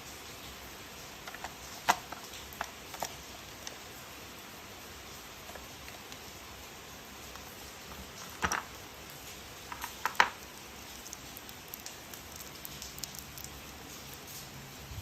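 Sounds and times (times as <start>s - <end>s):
plastic toy parts clicking: 1.2s - 3.8s.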